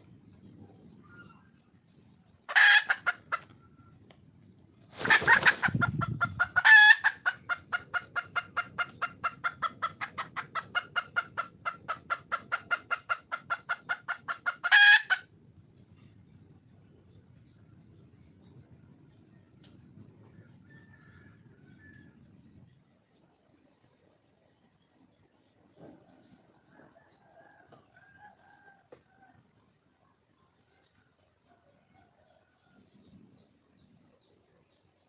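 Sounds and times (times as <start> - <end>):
junglefowl hen clucking: 2.5 - 3.8, 5.0 - 15.3
rustling burst: 4.9 - 6.0.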